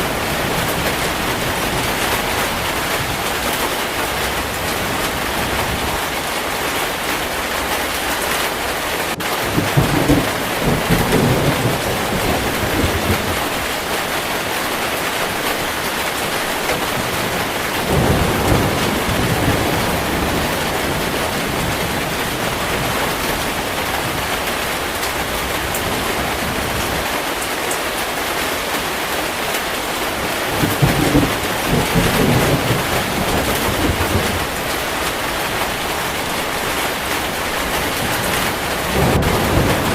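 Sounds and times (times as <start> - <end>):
heavy rain falling: 0.0 - 39.9
low rolls of thunder: 9.2 - 14.3, 16.6 - 24.6, 30.4 - 39.9.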